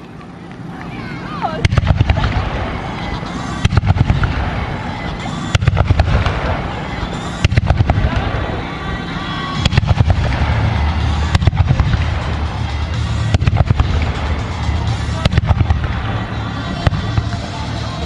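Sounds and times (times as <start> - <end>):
firework crackling: 0.0 - 18.0
low rumble: 0.5 - 18.0.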